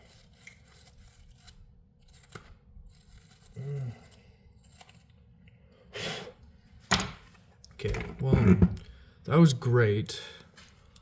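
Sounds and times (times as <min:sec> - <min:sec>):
small parts clicking and scraping: 0:00.0 - 0:05.6
person humming: 0:03.6 - 0:04.1.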